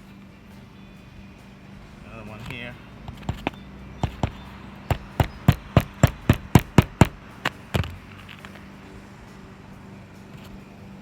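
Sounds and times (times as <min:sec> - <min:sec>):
hammer striking roofing nail: 0:03.1 - 0:08.1.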